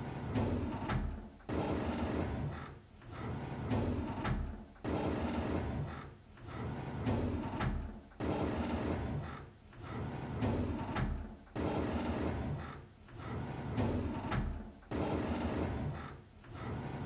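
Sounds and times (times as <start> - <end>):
drawer sliding open: 9.9 - 17.0.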